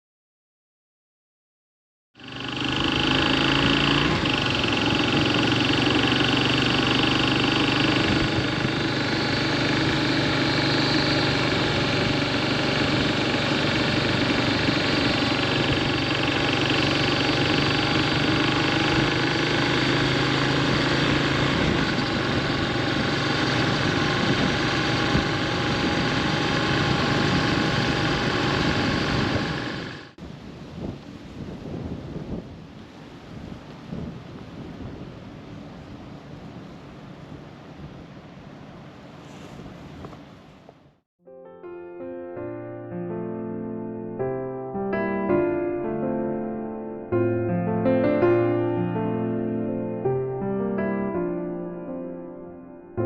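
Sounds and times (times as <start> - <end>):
single-cylinder motorcycle engine running: 2.2 - 30.2.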